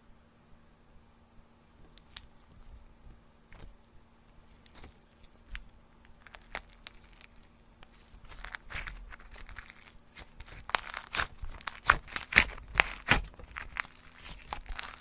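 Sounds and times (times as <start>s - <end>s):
steady low hum: 0.0s - 15.0s
small objects clicking and crinkling: 1.9s - 2.3s, 4.5s - 15.0s.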